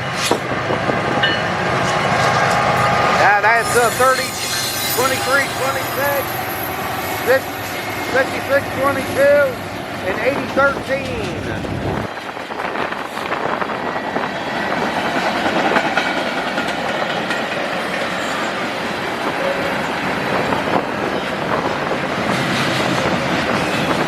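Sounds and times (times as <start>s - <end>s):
freight train rumbling past: 0.0s - 24.0s
wheels clattering over rail joints: 7.4s - 13.3s.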